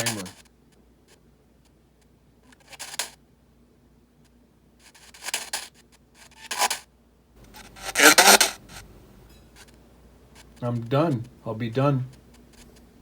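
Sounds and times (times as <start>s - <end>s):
radio static bursts: 7.5s - 8.9s.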